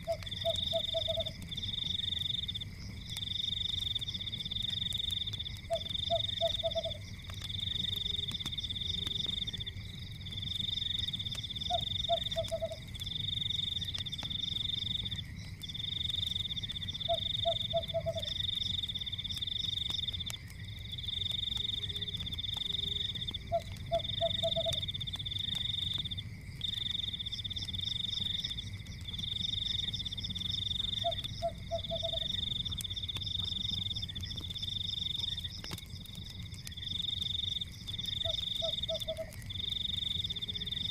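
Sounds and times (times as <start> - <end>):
frog croak: 0.0 - 1.4, 5.6 - 7.0, 11.6 - 12.9, 16.9 - 18.6, 23.0 - 24.9, 30.8 - 32.4, 38.2 - 40.8
fire crackling: 0.0 - 40.9.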